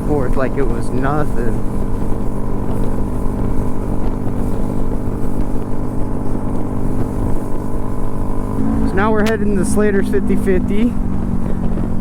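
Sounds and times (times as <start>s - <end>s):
motorcycle engine running: 0.0s - 12.0s
wind rumble on microphone: 0.0s - 12.0s.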